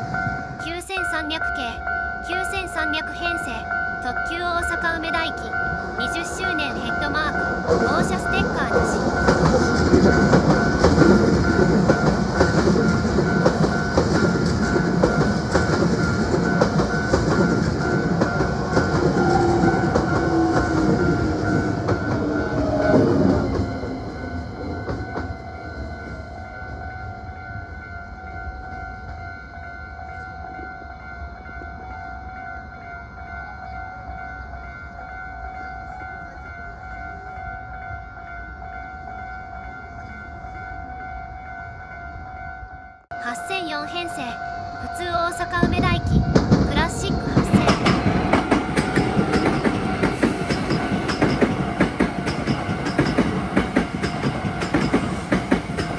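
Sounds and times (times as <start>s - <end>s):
short train whine: 8.8s - 27.9s, 44.2s - 55.9s
train wheels clattering over rail joints: 9.0s - 23.7s, 47.4s - 55.9s.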